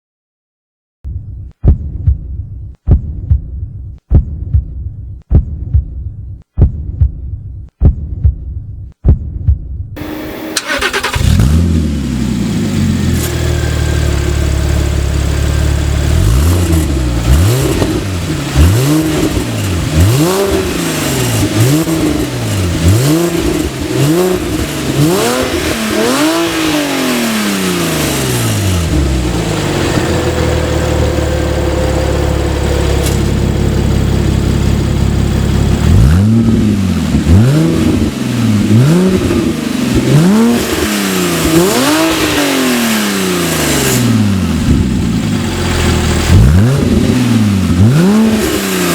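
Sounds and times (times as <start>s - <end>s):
car engine idling and revving: 10.0s - 48.9s.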